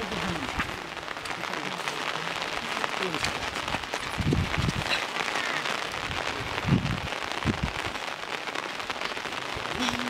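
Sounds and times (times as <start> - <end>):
rain pattering: 0.0 - 10.0
dull low thumps: 4.1 - 4.9.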